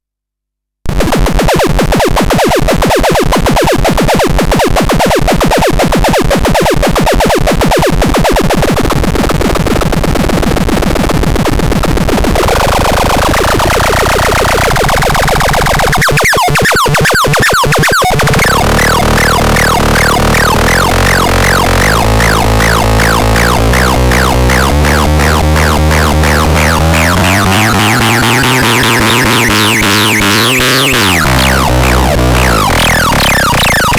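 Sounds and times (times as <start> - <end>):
electronic synthesizer music: 15.6 - 33.9.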